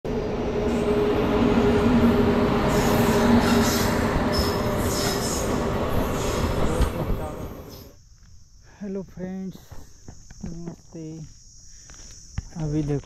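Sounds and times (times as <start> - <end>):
train rumble and hum: 0.1 - 7.9.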